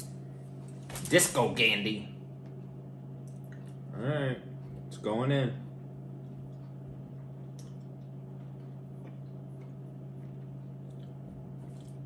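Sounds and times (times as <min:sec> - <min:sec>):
steady low hum: 0:00.0 - 0:12.0
faint chewing mouth clicks: 0:07.5 - 0:12.0.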